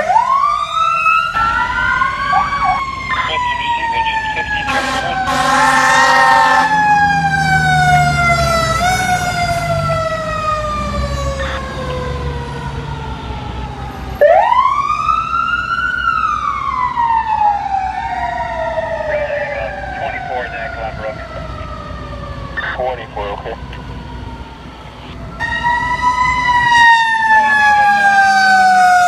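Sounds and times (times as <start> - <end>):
fire truck siren: 0.0 - 29.0.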